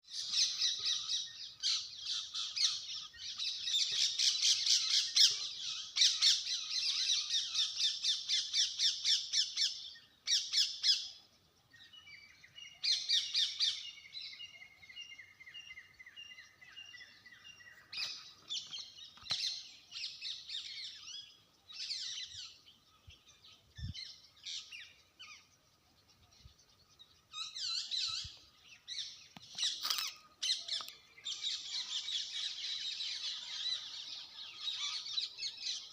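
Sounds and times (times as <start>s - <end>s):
bird calling: 0.0s - 11.2s, 11.8s - 35.9s.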